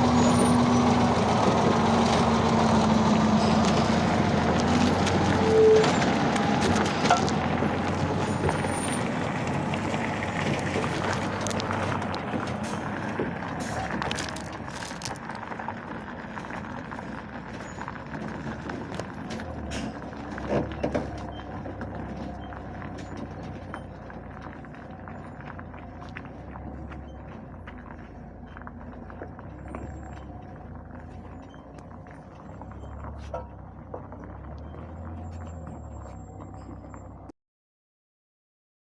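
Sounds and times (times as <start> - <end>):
truck running: 0.0 - 37.4.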